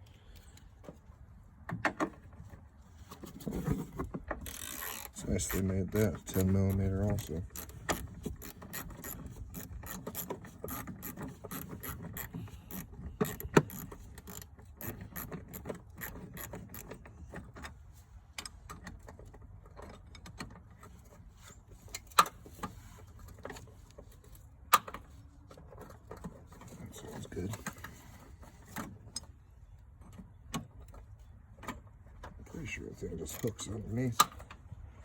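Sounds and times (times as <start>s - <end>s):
ratchet wrench clicking: 4.4s - 5.7s, 7.2s - 16.9s.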